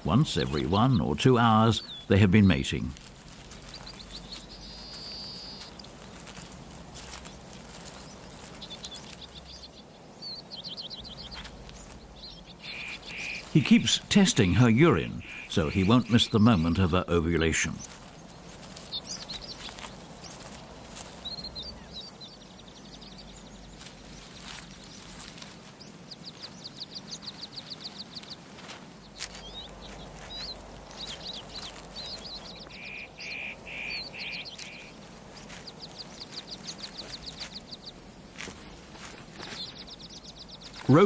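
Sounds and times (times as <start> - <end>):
songbirds chirping and trilling: 0.0 - 41.0
low pulsed bird notes: 3.6 - 7.1, 7.8 - 20.4, 29.0 - 38.2.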